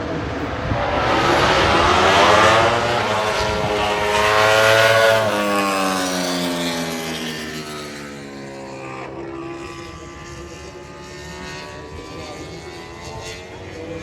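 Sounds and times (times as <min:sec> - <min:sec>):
racing motorcycle passing by: 0:00.0 - 0:14.0.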